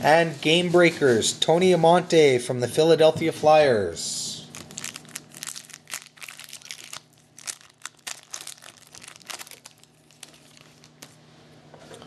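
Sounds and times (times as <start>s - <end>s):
plastic wrapper crinkling: 4.5s - 11.2s.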